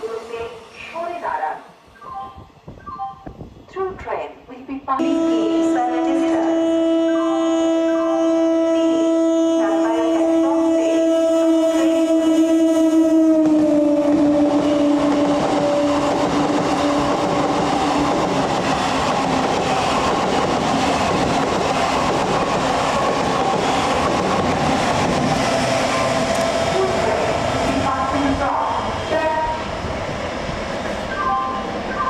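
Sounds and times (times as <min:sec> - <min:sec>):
two-tone train horn: 0:05.0 - 0:16.2, 0:26.3 - 0:28.1
train coaches rushing clatter: 0:14.1 - 0:32.0.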